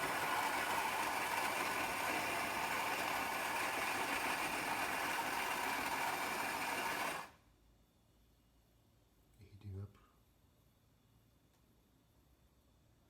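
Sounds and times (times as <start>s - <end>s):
coffee grinder whirring: 0.0s - 7.4s.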